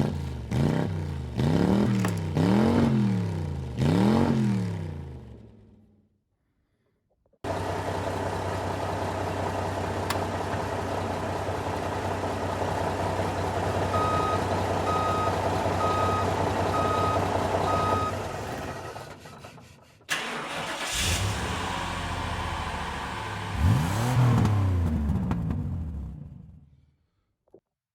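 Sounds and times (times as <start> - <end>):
vehicle engine idling: 7.4 - 23.6
another engine: 7.4 - 26.5
short beeps: 14.0 - 18.2.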